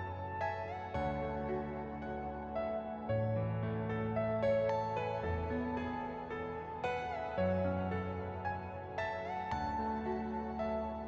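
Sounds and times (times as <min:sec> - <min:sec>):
soft keyboard music: 0:00.0 - 0:11.0.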